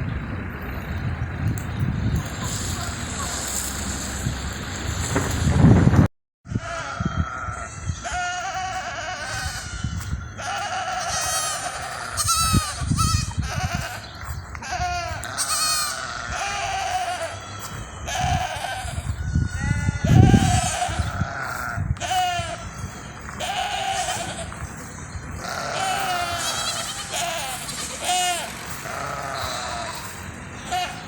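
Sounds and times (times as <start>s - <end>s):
flock bleating: 6.5s - 14.0s, 14.6s - 24.6s, 25.4s - 31.0s.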